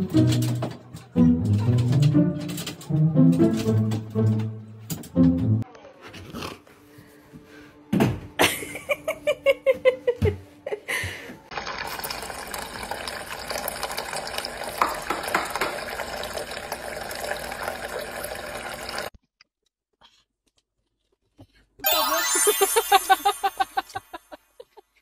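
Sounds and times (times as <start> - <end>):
water running from a tap: 11.5 - 19.1.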